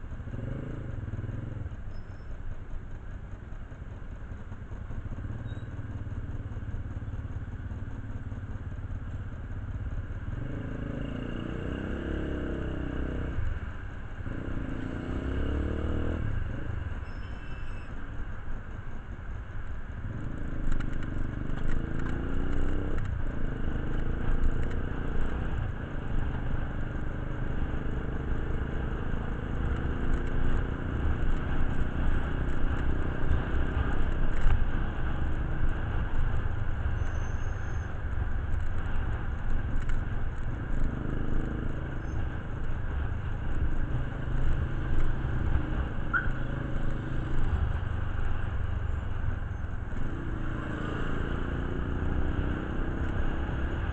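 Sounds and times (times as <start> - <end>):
vehicle engine running: 0.0 - 27.3.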